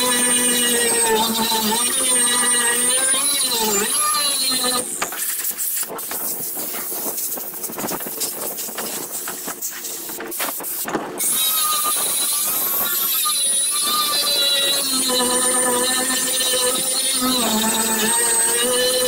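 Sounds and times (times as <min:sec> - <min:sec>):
grinder motor whine: 0:00.0 - 0:05.5, 0:10.6 - 0:19.0.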